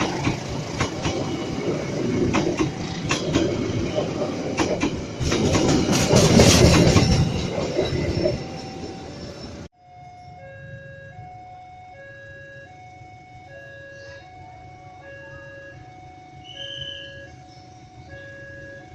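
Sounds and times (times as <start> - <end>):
train wheels clattering over rail joints: 0.0 - 9.7.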